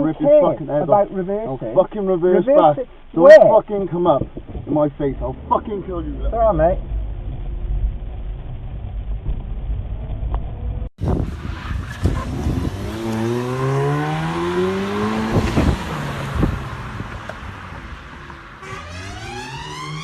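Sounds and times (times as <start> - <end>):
low road rumble: 0.0 - 20.0
wind noise: 4.2 - 4.9, 6.7 - 18.5
car engine accelerating: 4.5 - 20.0.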